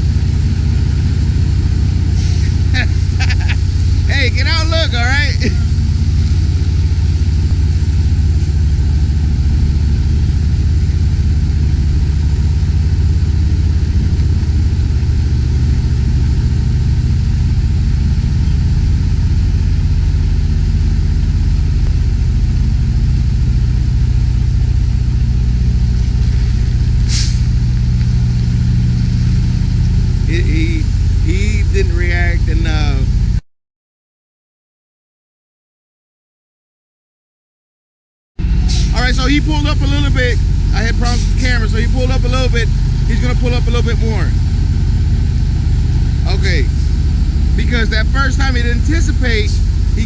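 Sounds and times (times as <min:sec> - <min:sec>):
diesel truck engine idling: 0:00.0 - 0:33.4, 0:38.4 - 0:50.0
short hiss: 0:27.0 - 0:27.5, 0:38.6 - 0:39.0.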